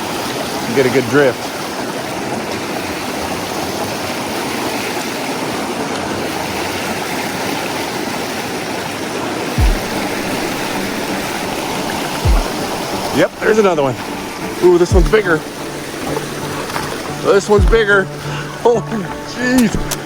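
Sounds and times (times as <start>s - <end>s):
river rushing over rocks: 0.0s - 20.0s
brief low thump: 9.6s - 9.9s.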